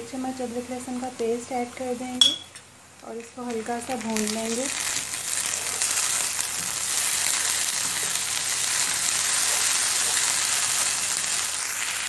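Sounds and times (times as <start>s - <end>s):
onions sizzling in oil: 3.1s - 12.0s.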